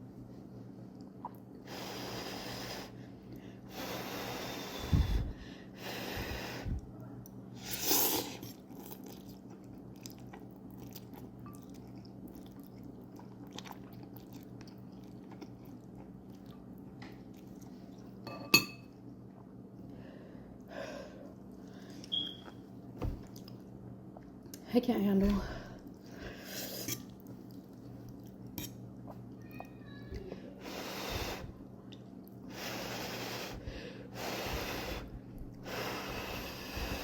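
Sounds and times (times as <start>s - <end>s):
person slurping noodles: 7.6s - 8.6s
person chewing: 7.6s - 18.1s.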